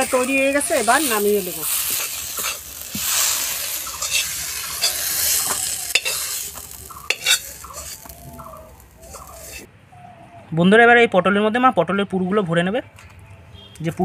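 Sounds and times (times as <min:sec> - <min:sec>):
food sizzling in oil: 0:00.0 - 0:09.7
spatula scraping metal pan: 0:00.8 - 0:08.2, 0:09.0 - 0:09.7.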